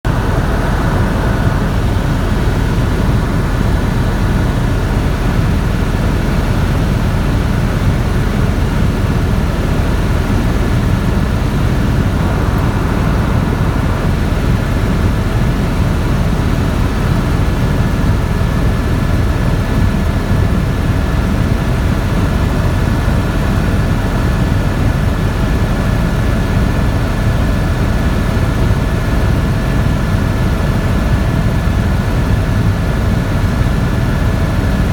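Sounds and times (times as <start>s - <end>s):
high whine: 0.0s - 19.2s
helicopter engine and rotor drone: 0.0s - 34.9s.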